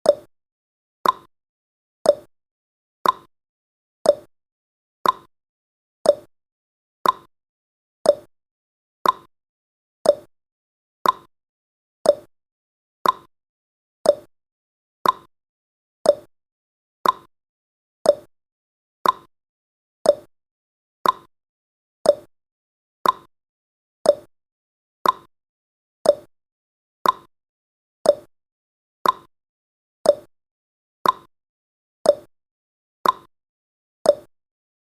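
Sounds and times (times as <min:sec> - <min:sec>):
clock ticking: 0:01.0 - 0:01.3, 0:05.0 - 0:05.3, 0:07.0 - 0:07.3, 0:08.1 - 0:08.3, 0:09.0 - 0:09.3, 0:10.1 - 0:10.3, 0:11.0 - 0:11.3, 0:12.1 - 0:12.3, 0:13.0 - 0:13.3, 0:14.1 - 0:14.3, 0:15.0 - 0:15.3, 0:16.1 - 0:16.3, 0:17.0 - 0:17.3, 0:18.1 - 0:18.3, 0:19.0 - 0:19.3, 0:20.1 - 0:20.3, 0:21.0 - 0:21.3, 0:22.1 - 0:22.3, 0:23.0 - 0:23.3, 0:24.1 - 0:24.3, 0:25.0 - 0:25.3, 0:26.0 - 0:26.3, 0:27.0 - 0:27.3, 0:28.1 - 0:28.3, 0:29.0 - 0:29.3, 0:30.1 - 0:30.3, 0:31.0 - 0:31.3, 0:32.1 - 0:32.3, 0:33.0 - 0:33.3, 0:34.1 - 0:34.3.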